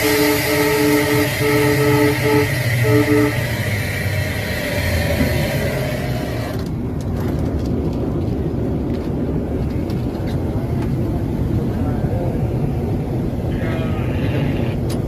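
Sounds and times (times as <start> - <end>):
train horn: 0.0 - 4.4
train hiss: 0.0 - 6.6
train rumbling: 0.0 - 15.0.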